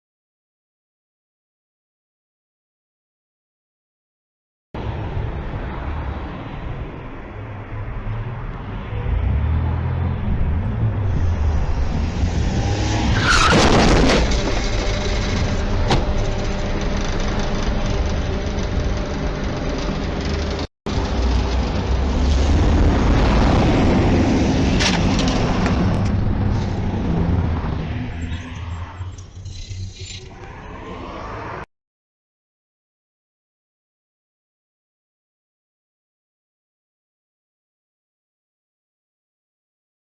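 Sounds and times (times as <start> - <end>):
car road and engine rumble: 4.8 - 31.7
tyres skidding squeal: 12.6 - 20.4, 27.9 - 31.7.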